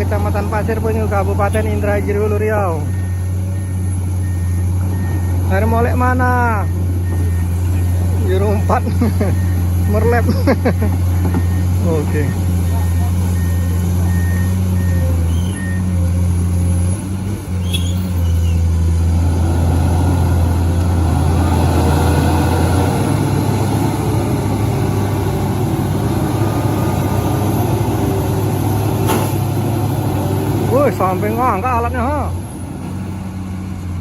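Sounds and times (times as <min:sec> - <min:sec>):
heavy diesel engine running: 0:00.0 - 0:34.0
warning alarm beeping: 0:01.6 - 0:10.4, 0:11.3 - 0:16.0.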